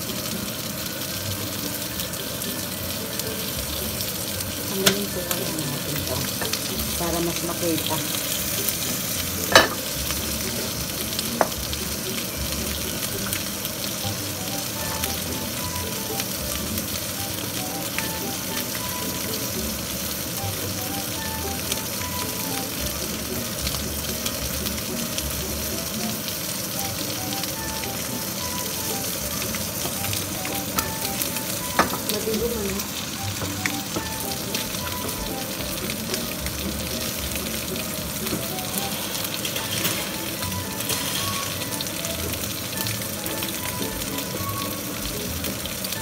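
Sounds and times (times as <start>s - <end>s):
food sizzling in a pan: 0.0s - 46.0s
pan clacking on stove grate: 4.7s - 6.7s, 9.4s - 10.0s, 39.1s - 41.6s.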